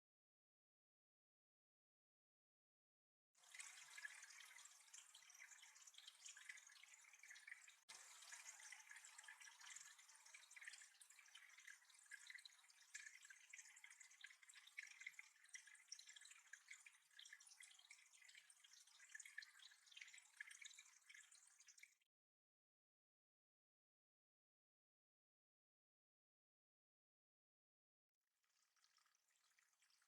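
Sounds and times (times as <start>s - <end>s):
water dripping and trickling: 3.4s - 22.0s, 28.4s - 30.0s.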